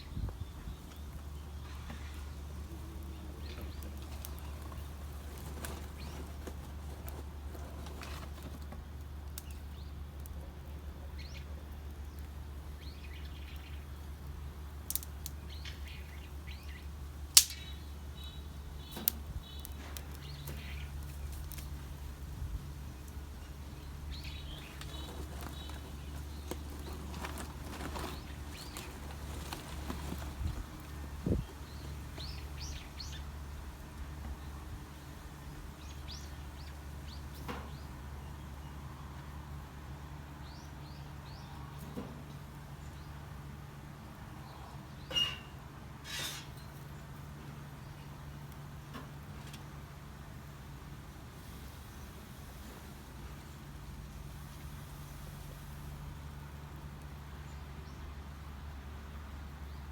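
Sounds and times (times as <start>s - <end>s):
wood fire crackling: 0.0s - 38.6s
birds chirping: 0.0s - 43.2s
sharp pops from fire: 14.8s - 16.2s, 17.3s - 21.8s.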